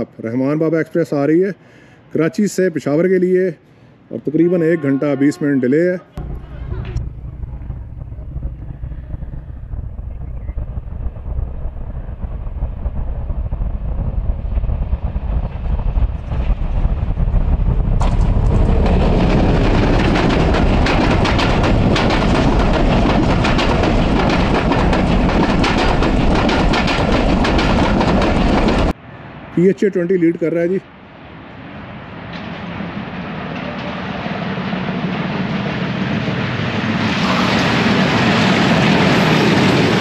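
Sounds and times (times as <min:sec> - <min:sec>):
diesel locomotive rumble: 0:06.2 - 0:29.0, 0:32.2 - 0:40.0
train wheels on rails rushing: 0:06.2 - 0:29.0, 0:31.7 - 0:40.0.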